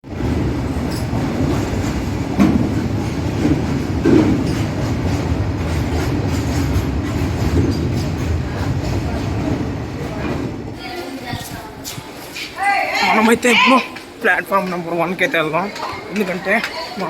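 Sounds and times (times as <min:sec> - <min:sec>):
train rumbling on tracks: 0:00.0 - 0:12.2.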